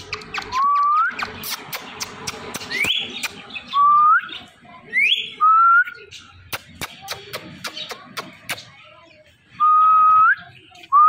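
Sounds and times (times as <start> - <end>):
parrot clicks and chirps: 0.0 - 3.8, 6.4 - 8.8.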